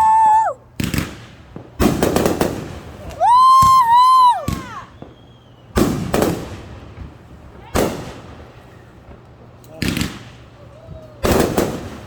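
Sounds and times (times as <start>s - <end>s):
shrill whistling firework: 0.0s - 1.3s, 2.2s - 6.6s
fireworks cracking: 0.0s - 12.0s
fireworks reports with crackle: 0.0s - 12.0s.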